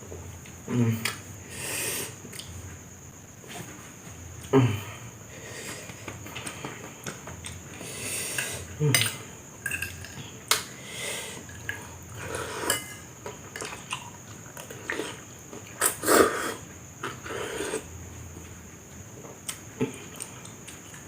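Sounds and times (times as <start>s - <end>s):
cutlery clinking on a dish: 8.4s - 10.6s, 12.6s - 13.7s.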